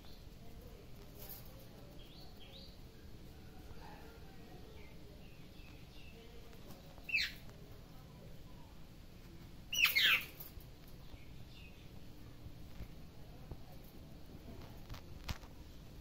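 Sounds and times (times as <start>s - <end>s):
small bird chirping: 7.0s - 7.4s, 9.7s - 12.0s.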